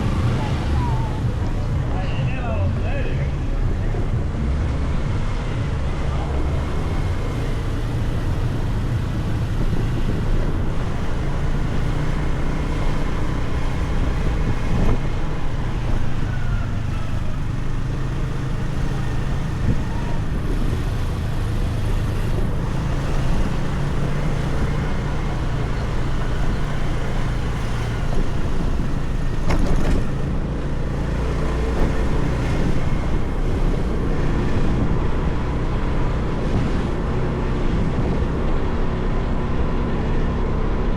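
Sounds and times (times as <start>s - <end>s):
road noise: 0.0s - 40.9s
wind over microphone: 0.0s - 40.9s
motorcycle engine running: 2.6s - 40.9s.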